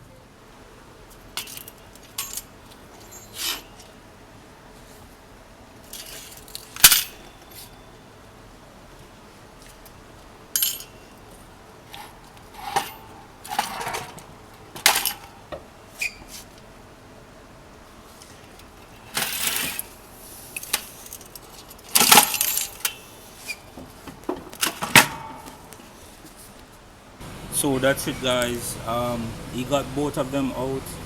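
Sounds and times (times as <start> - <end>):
metal parts clattering: 1.3 - 3.9, 5.8 - 7.8, 10.6 - 16.2, 18.8 - 23.6
metal tools clinking and clanking: 1.4 - 3.9, 5.8 - 7.9, 10.6 - 16.3, 18.8 - 23.6.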